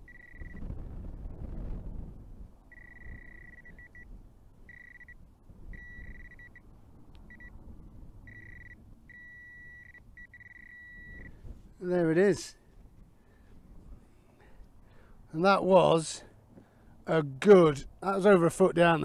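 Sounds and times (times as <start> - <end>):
metal detector tone: 0.0 - 0.7, 2.7 - 4.1, 4.7 - 6.6, 7.3 - 7.6, 8.3 - 11.4.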